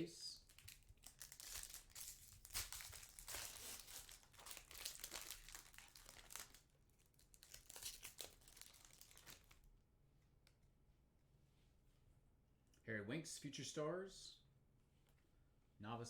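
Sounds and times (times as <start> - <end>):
foil wrapper crinkling and tearing: 0.4 - 9.7.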